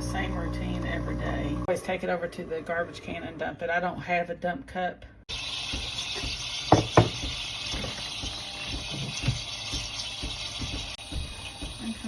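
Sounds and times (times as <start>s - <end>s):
water running from a tap: 5.3s - 12.0s
sharp knocks: 5.7s - 11.8s.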